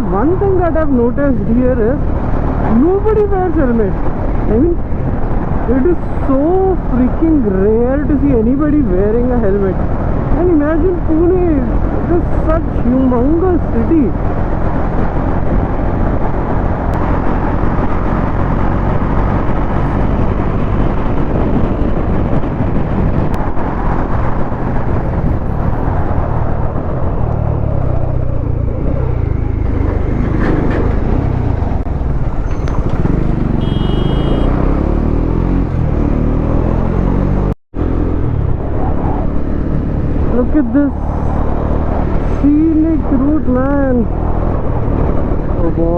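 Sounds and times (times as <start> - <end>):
wind rush: 0.0 - 45.9
motorcycle engine running: 28.3 - 36.1.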